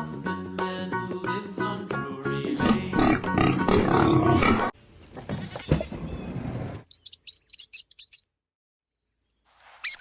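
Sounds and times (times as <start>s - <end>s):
mouse squeaking: 6.9s - 8.3s.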